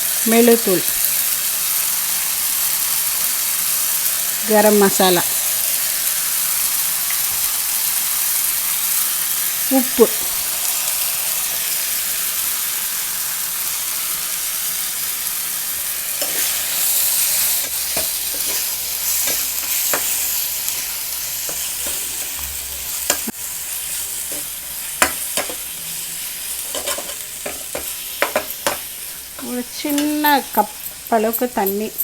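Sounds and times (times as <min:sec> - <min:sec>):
liver sizzling in hot oil: 0:00.0 - 0:32.0
spoon knocking and scraping pan: 0:17.4 - 0:23.3, 0:24.3 - 0:25.7, 0:26.6 - 0:31.0.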